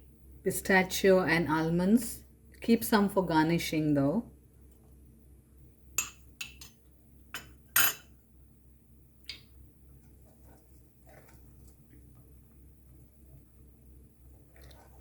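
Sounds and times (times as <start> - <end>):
spoon clinking against a pan: 6.0 - 6.8.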